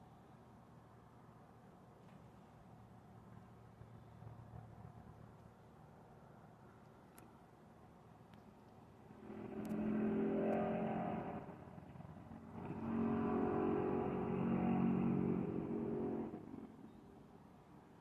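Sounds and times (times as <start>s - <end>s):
vehicle engine running loudly: 9.1s - 16.7s.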